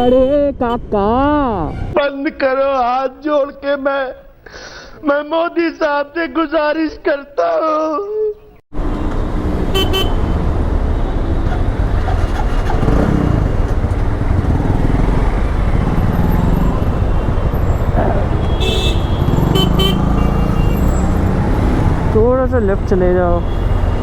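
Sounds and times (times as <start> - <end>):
motorcycle engine and road rumble: 8.7 - 24.0
horn toots: 8.9 - 13.8, 15.4 - 22.0.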